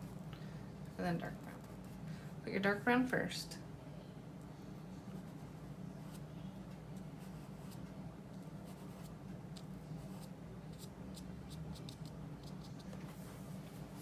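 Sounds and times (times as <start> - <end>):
steady low hum: 0.0 - 14.0
paintbrush dabbing on paper: 8.4 - 13.3.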